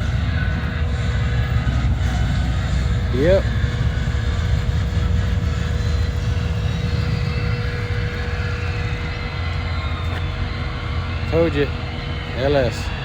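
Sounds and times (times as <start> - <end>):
engine idling with low rumble: 0.0 - 13.0
faint steady whine: 0.0 - 13.0.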